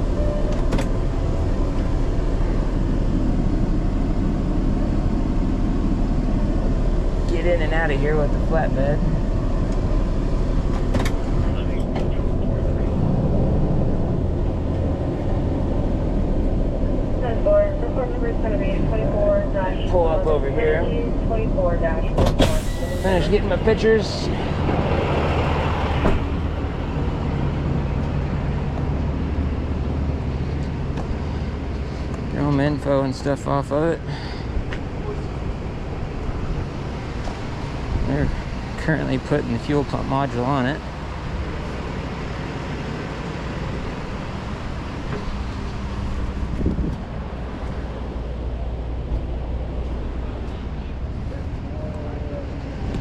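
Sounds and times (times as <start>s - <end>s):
truck engine idling: 0.0s - 53.0s
wind on microphone: 46.2s - 47.6s.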